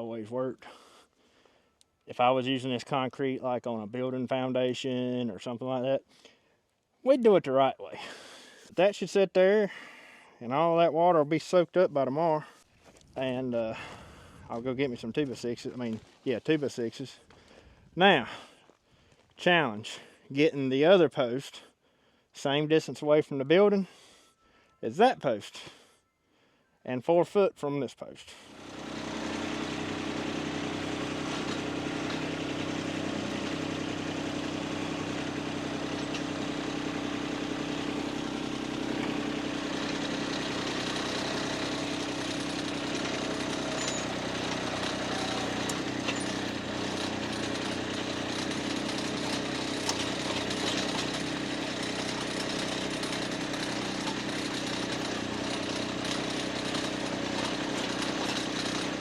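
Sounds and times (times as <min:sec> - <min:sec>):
engine idling: 0:28.5 - 0:59.0
faint engine knocks: 0:48.4 - 0:51.4.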